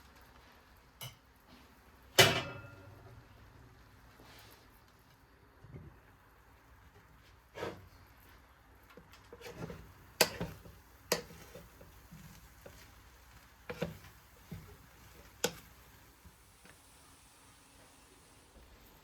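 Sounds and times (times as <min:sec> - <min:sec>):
kitchen knocks and clicks: 0:02.2 - 0:02.8.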